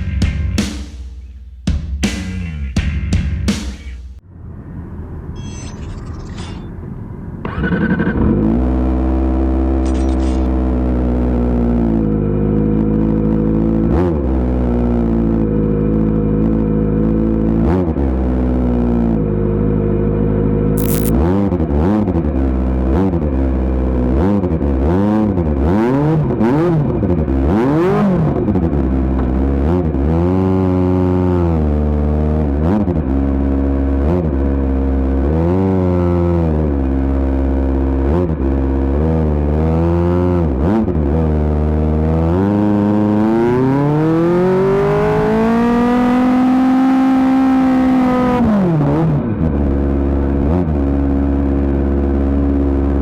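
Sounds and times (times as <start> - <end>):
motorcycle engine revving: 33.9 - 49.2.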